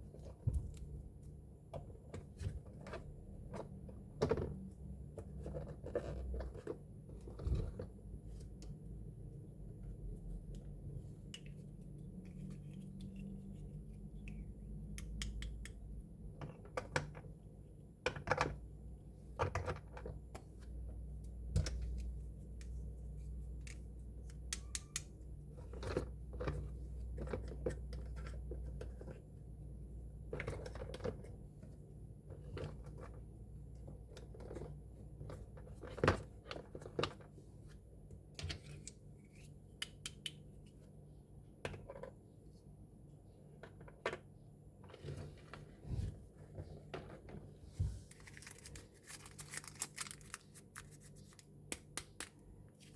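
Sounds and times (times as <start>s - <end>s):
low steady hum: 0.0s - 52.9s.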